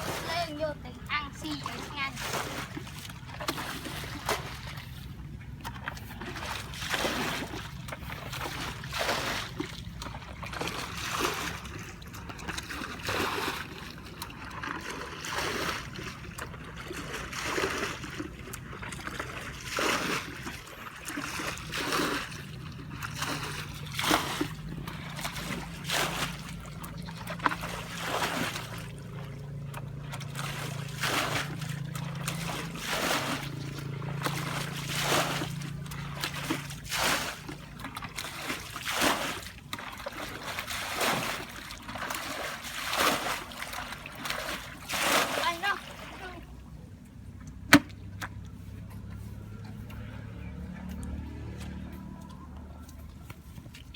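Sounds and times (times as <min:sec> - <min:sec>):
low hum: 0:00.0 - 0:38.2
water splashing: 0:00.0 - 0:53.9.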